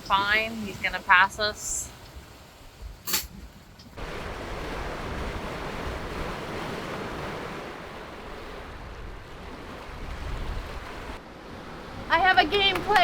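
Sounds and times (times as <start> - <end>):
wind: 0.0 - 13.0
sea water rushing: 4.0 - 13.0.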